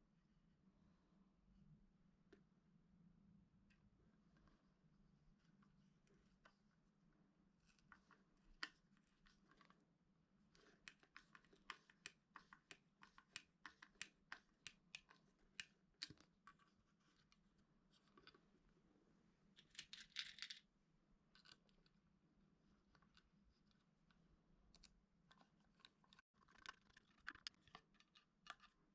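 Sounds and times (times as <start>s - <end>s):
light clicks and taps: 10.6s - 17.4s.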